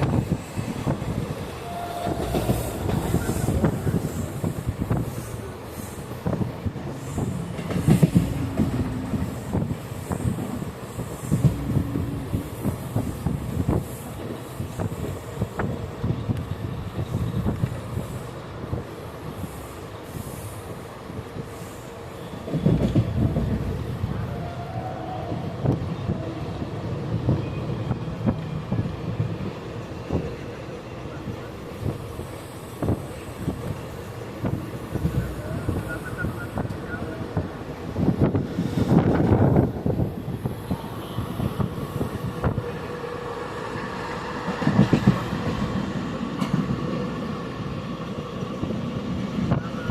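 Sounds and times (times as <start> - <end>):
train rumbling on rails: 0.0 - 49.9
train wheels knocking: 7.0 - 10.6.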